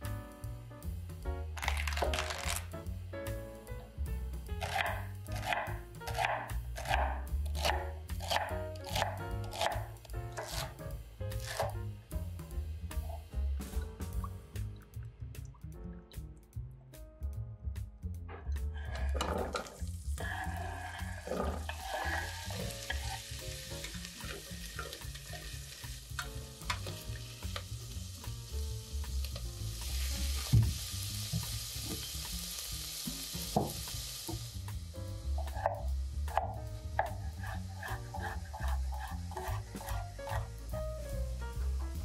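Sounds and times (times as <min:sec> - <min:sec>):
vegetables sizzling in hot oil: 0:19.4 - 0:42.0.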